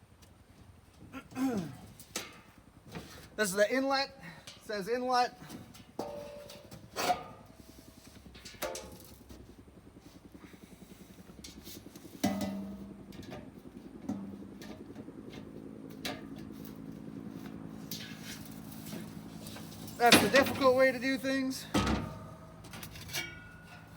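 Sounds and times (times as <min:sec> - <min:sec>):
low hum: 0:05.6 - 0:23.9
metal exhaust parts clanking: 0:05.8 - 0:07.4, 0:18.0 - 0:23.9.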